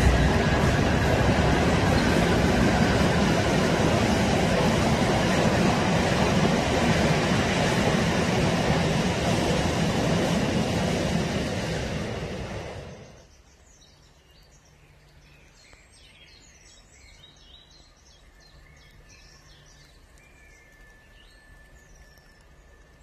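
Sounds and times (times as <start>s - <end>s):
loud passing sound: 0.0s - 13.1s
low hum: 0.0s - 13.2s
small birds singing: 12.8s - 23.0s.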